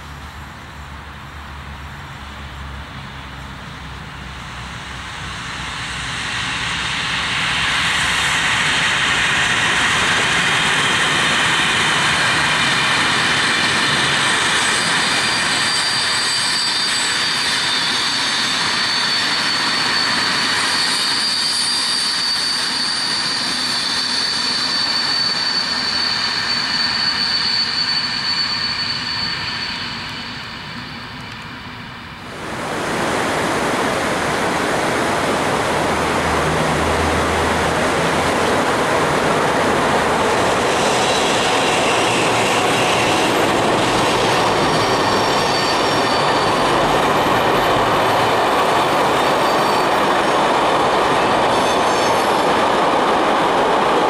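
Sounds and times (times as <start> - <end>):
train wheels rushing on rails: 0.0 - 54.0
high steady ringing tone: 14.8 - 31.3, 41.0 - 48.6.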